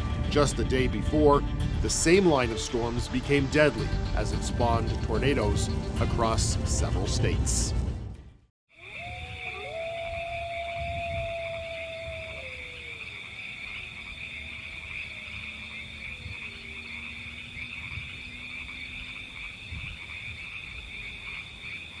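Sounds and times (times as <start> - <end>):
frogs trilling: 8.7 - 22.0
low rumbling: 8.8 - 21.0.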